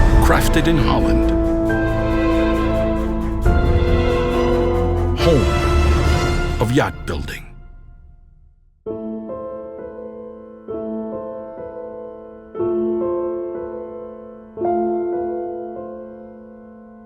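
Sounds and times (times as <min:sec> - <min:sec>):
slow piano chords: 0:08.9 - 0:17.0.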